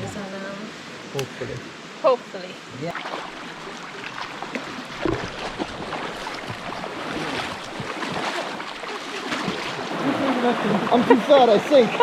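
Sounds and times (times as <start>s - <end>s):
river water rushing: 0.0s - 12.0s
water splashing as person wades: 2.9s - 12.0s.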